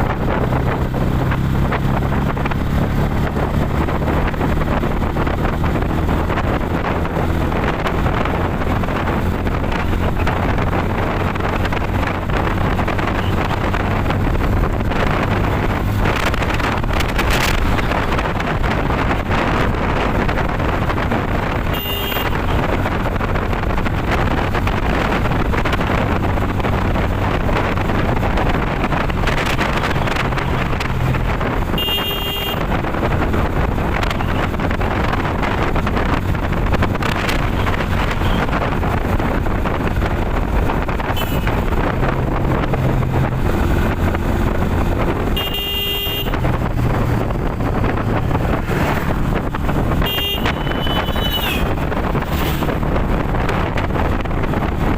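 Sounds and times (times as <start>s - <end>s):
motorcycle engine: 0.0s - 54.9s
wind noise on microphone: 0.0s - 54.9s
horn toots: 21.6s - 22.7s, 31.6s - 32.8s, 37.4s - 38.6s, 41.1s - 41.7s, 45.3s - 46.5s, 49.9s - 51.8s.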